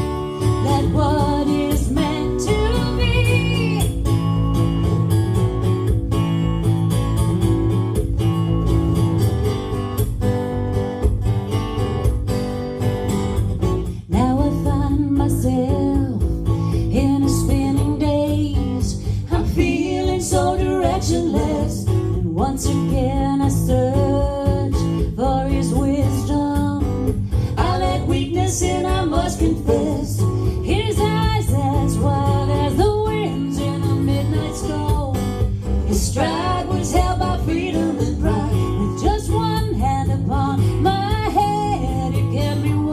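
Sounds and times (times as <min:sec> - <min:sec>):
strummed acoustic guitar: 0:00.0 - 0:42.9
person singing: 0:00.5 - 0:03.9, 0:16.9 - 0:26.8, 0:27.5 - 0:42.9.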